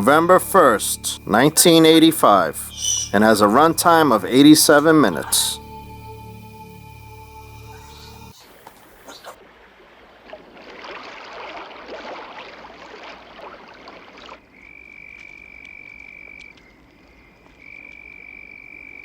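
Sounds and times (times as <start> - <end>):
high-pitched whine: 0.0 - 8.4.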